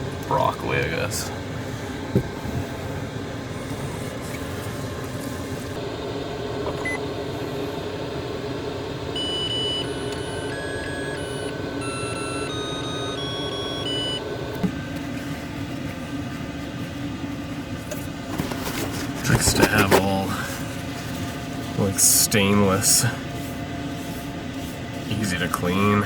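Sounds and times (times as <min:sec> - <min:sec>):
steady hum: 0:00.0 - 0:26.0
rice cooker beeping tune: 0:09.1 - 0:14.9.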